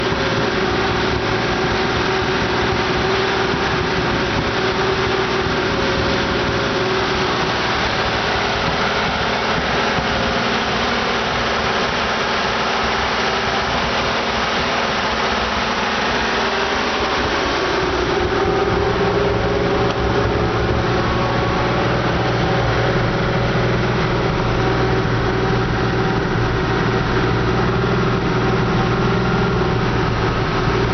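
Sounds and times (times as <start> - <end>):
car engine idling: 0.0 - 30.9.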